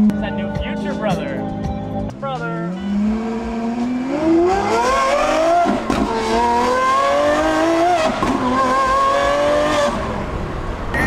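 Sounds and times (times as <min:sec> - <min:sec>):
car engine accelerating hard: 0:02.6 - 0:11.0.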